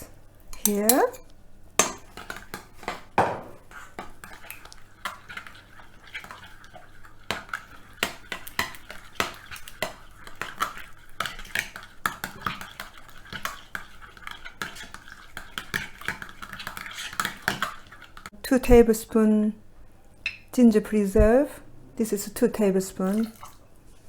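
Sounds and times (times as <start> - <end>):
spoon scraping a mixing bowl: 0.0 - 18.3.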